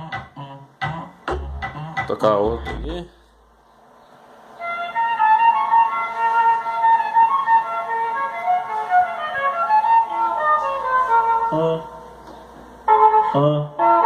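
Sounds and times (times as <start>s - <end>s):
flute melody over car speakers: 4.6s - 12.1s, 12.8s - 14.0s.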